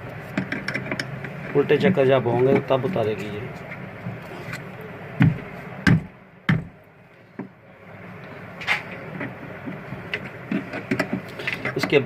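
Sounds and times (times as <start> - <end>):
hard objects knocking: 5.2 - 6.8, 9.2 - 12.0.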